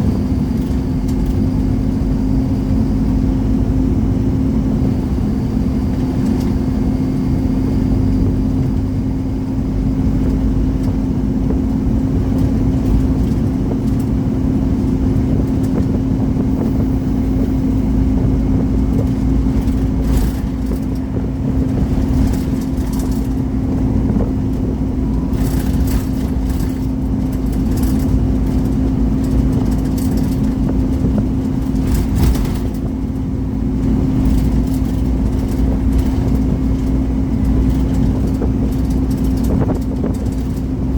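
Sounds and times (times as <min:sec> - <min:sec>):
bus engine and road rumble: 0:00.0 - 0:40.9
constant hum: 0:00.0 - 0:40.9
brief rattles: 0:14.8 - 0:40.7.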